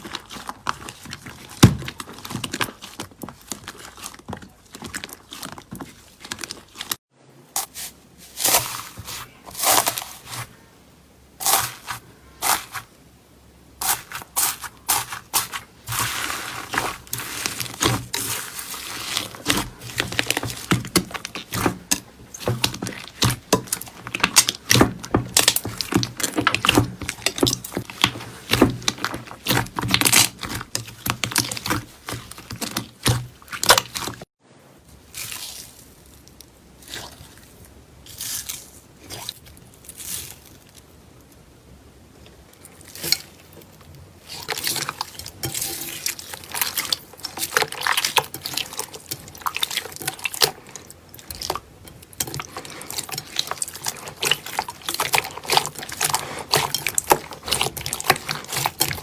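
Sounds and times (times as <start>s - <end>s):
slime squished by hand: 11.4s - 12.9s, 13.8s - 34.2s.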